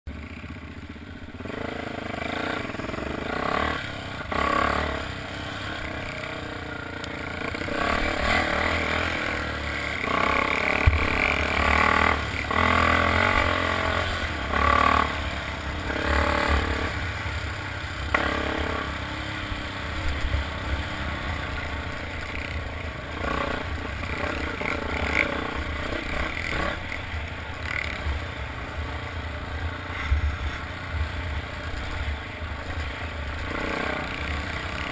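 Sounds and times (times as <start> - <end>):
motocross engines revving: 0.1 - 34.9.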